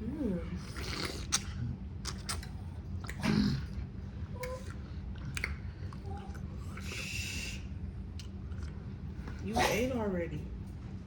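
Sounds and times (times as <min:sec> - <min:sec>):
wet mouth clicks and smacks: 0:01.2 - 0:03.3, 0:04.4 - 0:06.4, 0:08.1 - 0:08.8.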